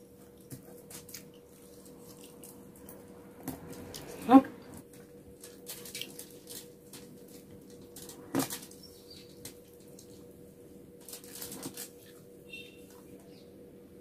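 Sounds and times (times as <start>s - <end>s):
fingers clicking and rustling on foil: 0.0s - 2.6s, 4.9s - 10.3s, 11.0s - 12.2s
chewing and mouth smacks: 0.1s - 3.1s.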